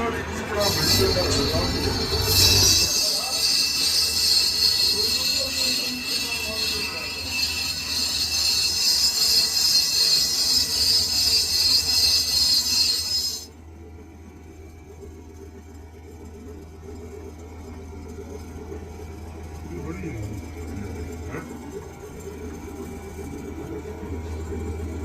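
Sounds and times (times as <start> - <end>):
lathe low hum: 0.0 - 25.0
high-pitched metal cutting screech: 0.4 - 13.5.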